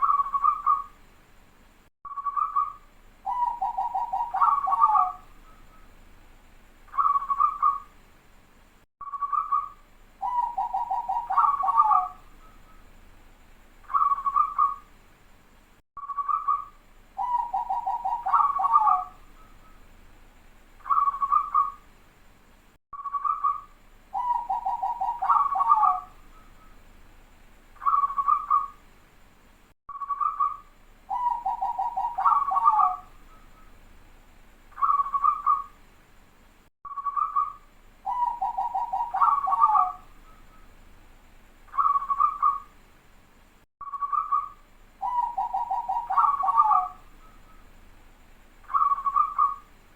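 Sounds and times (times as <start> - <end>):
dove cooing and trilling: 0.0 - 0.9, 2.2 - 5.6, 6.9 - 7.9, 9.2 - 12.6, 13.9 - 14.8, 17.2 - 19.5, 20.8 - 21.8, 23.1 - 26.7, 27.8 - 28.8, 30.1 - 33.7, 34.8 - 35.8, 37.0 - 40.6, 41.7 - 42.7, 44.0 - 47.6, 48.7 - 49.7.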